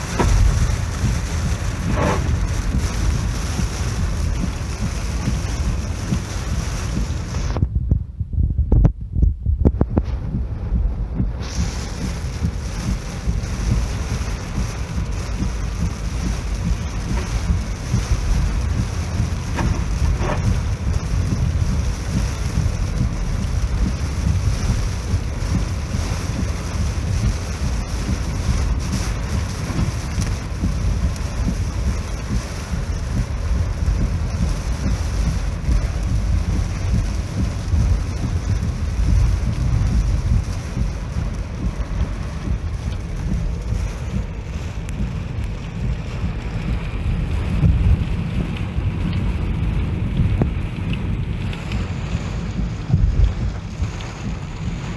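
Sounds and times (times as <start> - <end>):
steady rushing hiss: 0.0 - 7.6, 9.9 - 54.9
wind buffeting microphone: 0.0 - 54.9.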